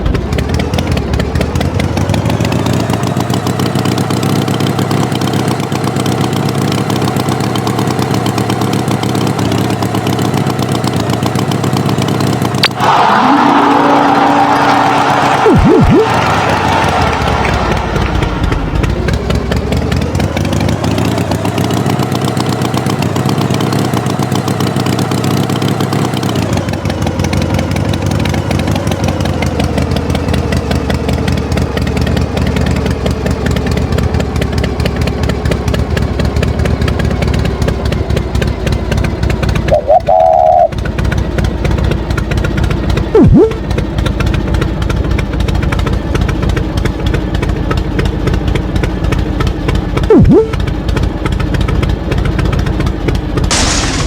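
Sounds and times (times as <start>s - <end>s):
tractor engine running: 0.0s - 54.0s
short higher tone: 15.4s - 16.2s, 39.7s - 40.7s, 43.2s - 43.6s, 50.1s - 50.6s.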